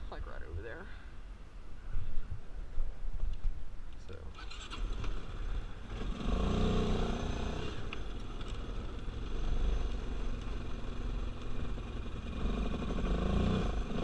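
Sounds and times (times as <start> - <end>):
quad bike engine running: 4.8 - 14.0.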